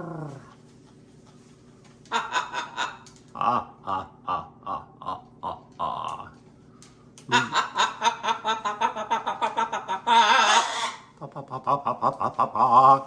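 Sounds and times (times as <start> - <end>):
parrot squawk: 2.1 - 3.0, 7.3 - 11.2
parrot cackling: 2.1 - 4.4, 7.3 - 11.2.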